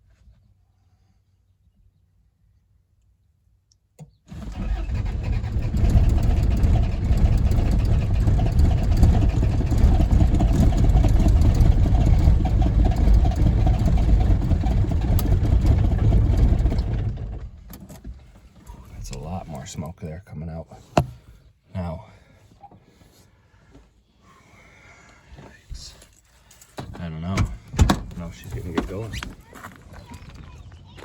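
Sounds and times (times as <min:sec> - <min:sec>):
click: 0:03.7 - 0:04.2
diesel engine cranking on starter: 0:04.0 - 0:18.1.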